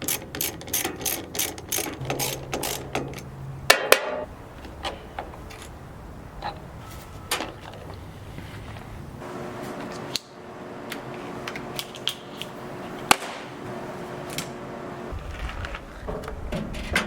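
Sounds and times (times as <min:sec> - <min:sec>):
hand tools clicking on metal: 0:00.0 - 0:05.8.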